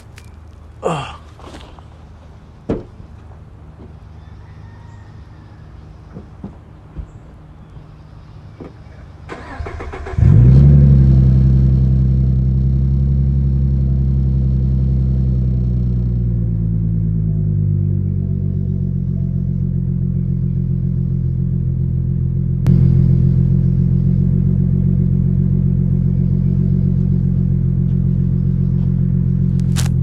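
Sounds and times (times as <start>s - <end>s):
car engine starting and idling: 9.2s - 30.0s.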